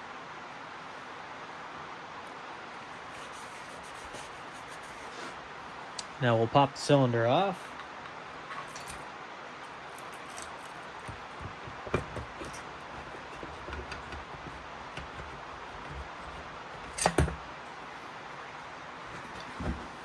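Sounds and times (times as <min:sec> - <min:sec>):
metal clunks: 0:10.0 - 0:17.5.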